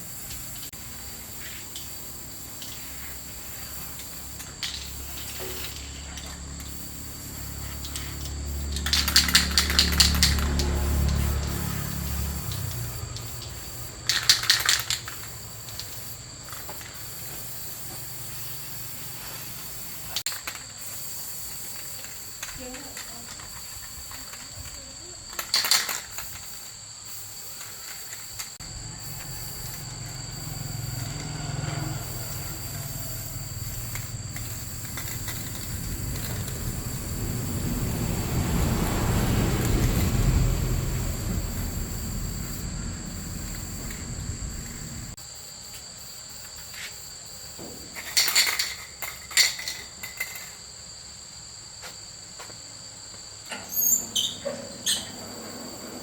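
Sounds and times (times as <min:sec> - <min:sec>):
insect chirring: 0:00.0 - 0:56.0
low mechanical hum: 0:28.6 - 0:45.2.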